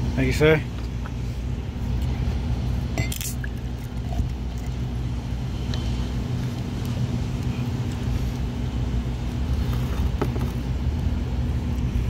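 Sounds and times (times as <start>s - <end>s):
vehicle idling hum: 0.0s - 12.0s
glass clink: 3.0s - 3.4s.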